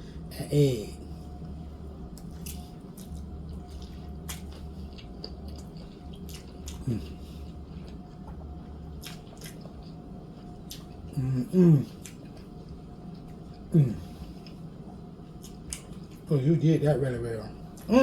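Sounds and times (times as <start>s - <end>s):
low hum: 0.0s - 18.0s
wet chewing and mouth smacks: 2.1s - 11.1s, 11.9s - 14.7s, 15.4s - 16.3s
person humming mm: 6.8s - 7.1s, 11.1s - 11.9s, 13.7s - 14.2s.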